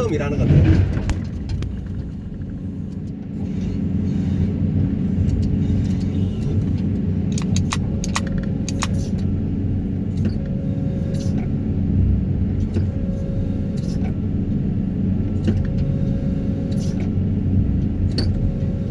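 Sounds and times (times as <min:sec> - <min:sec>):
excavator engine and hydraulics: 0:00.0 - 0:18.9
sharp clicks: 0:07.3 - 0:09.0.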